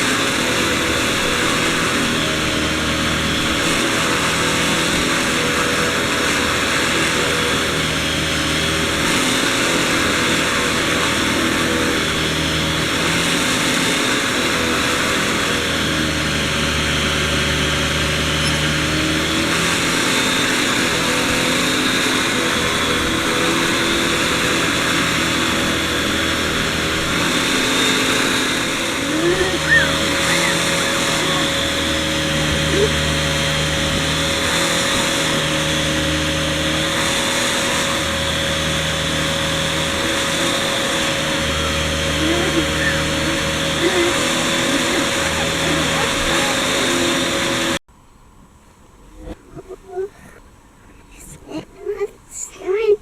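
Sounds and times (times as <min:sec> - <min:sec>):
vacuum cleaner running: 0:00.0 - 0:47.9, 0:51.2 - 0:52.9
brief rising squeaks: 0:18.4 - 0:18.7, 0:29.6 - 0:31.0.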